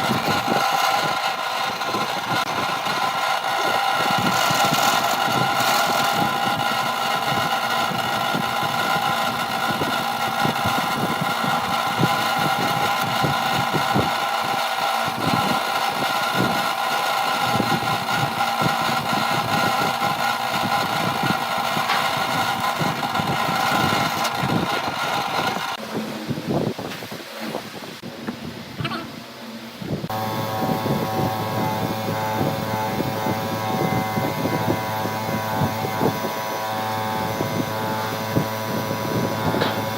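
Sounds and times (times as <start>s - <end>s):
power tool motor whining: 0.0s - 25.8s, 29.9s - 39.9s.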